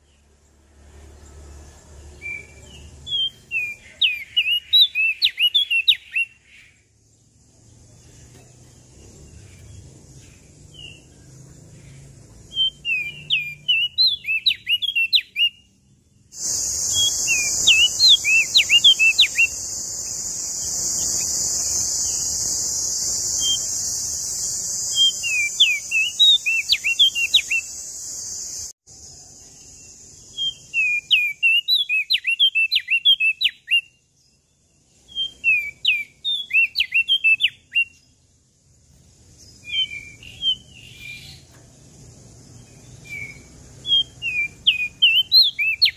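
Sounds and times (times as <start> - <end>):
songbird chirping: 0.0 - 45.9
loud steady high hiss: 16.3 - 31.2.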